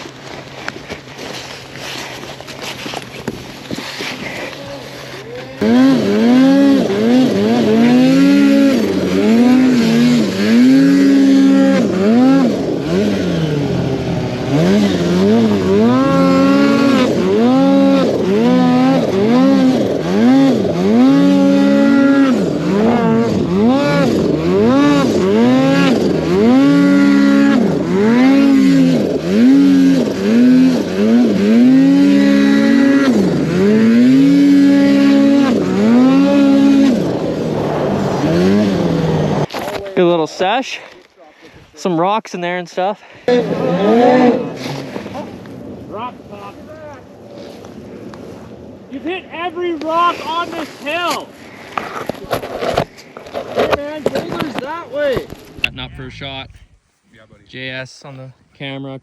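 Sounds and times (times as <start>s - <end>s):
snowmobile engine revving: 1.2s - 39.5s, 43.3s - 46.8s, 53.5s - 56.9s.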